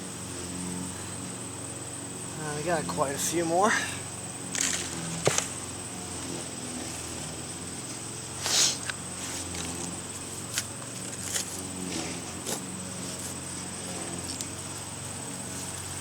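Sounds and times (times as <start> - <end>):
shovel scraping soil: 4.5 - 16.0.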